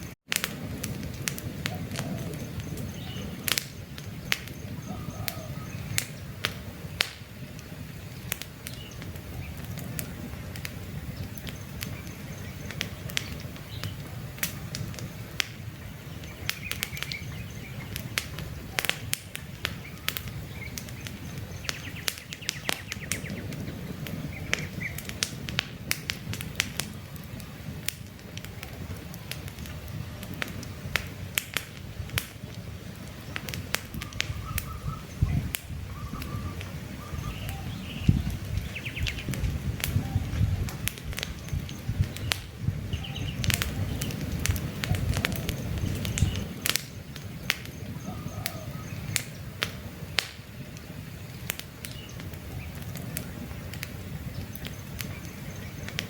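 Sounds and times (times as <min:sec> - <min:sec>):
campfire crackling and popping: 0:00.0 - 0:56.0
faint bird chirps: 0:04.2 - 0:06.3, 0:34.0 - 0:39.3, 0:39.9 - 0:44.2, 0:44.8 - 0:49.4.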